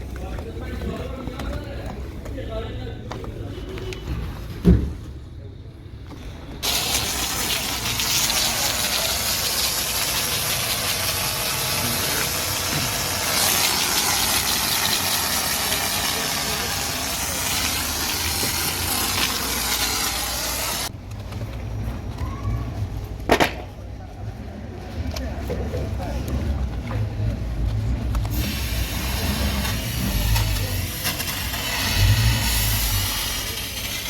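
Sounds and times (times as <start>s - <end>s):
high-pressure spray hissing: 6.6s - 20.9s, 28.3s - 34.0s.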